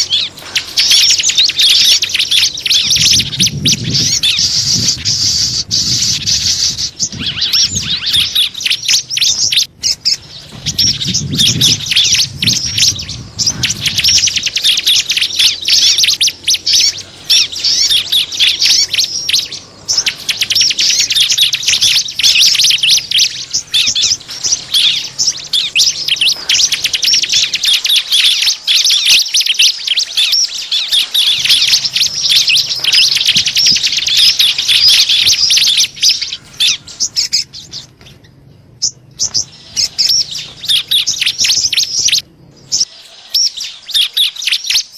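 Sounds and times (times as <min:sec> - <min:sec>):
small birds chirping: 0:00.0 - 0:44.9
low rumble: 0:02.7 - 0:20.0.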